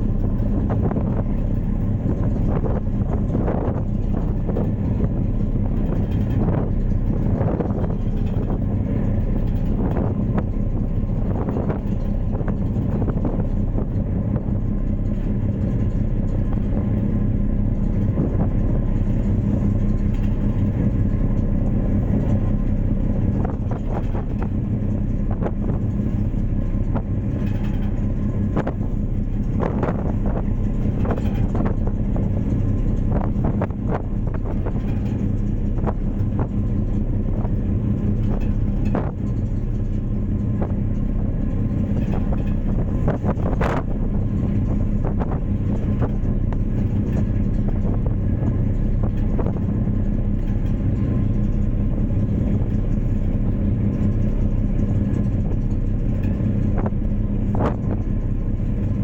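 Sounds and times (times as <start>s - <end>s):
ferry engine drone: 0.0s - 59.0s.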